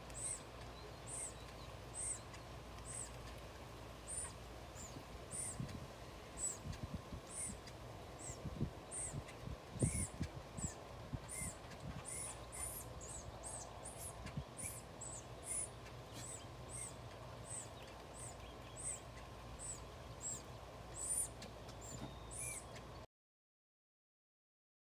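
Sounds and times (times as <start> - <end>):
bird chirping: 0.0 - 23.1.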